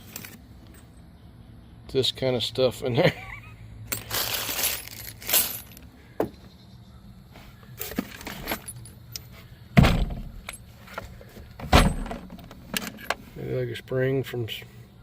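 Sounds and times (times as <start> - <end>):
cartridges clinking and rattling: 3.9 - 5.9, 7.8 - 9.4, 10.0 - 11.0, 11.6 - 13.3
heavy knocks: 9.8 - 10.4.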